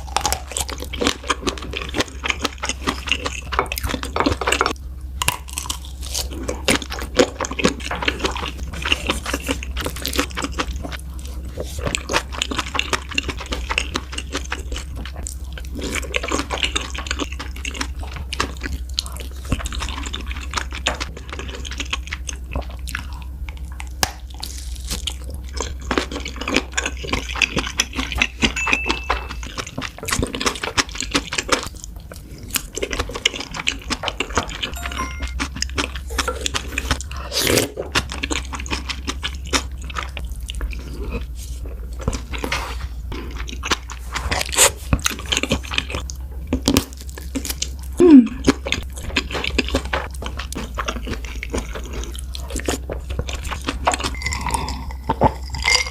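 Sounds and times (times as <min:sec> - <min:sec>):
person chewing food: 0:00.0 - 0:55.9
low hum: 0:34.6 - 0:37.3.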